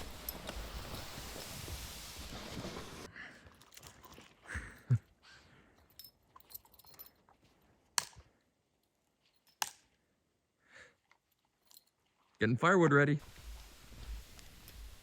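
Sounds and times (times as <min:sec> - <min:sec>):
rustling: 0:00.0 - 0:03.1.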